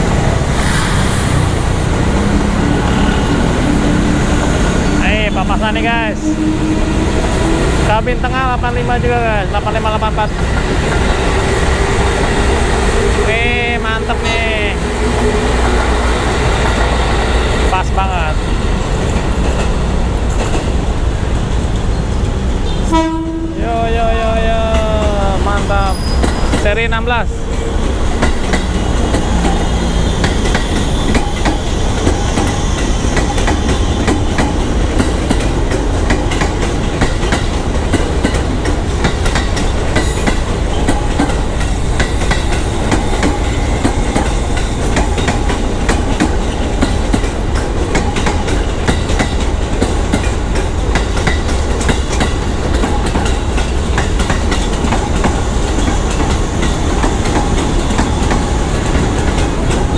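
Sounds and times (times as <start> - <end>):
electric train passing: 0.0 - 59.9
wheels clattering over rail joints: 24.7 - 59.9.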